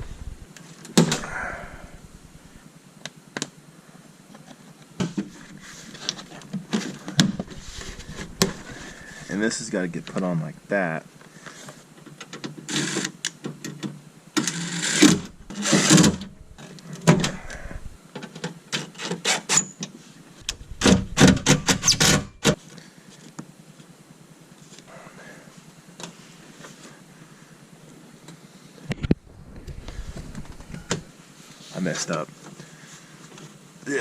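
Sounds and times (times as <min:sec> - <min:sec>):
scrapes and rustles of parts: 0:04.4 - 0:09.4, 0:14.4 - 0:23.4.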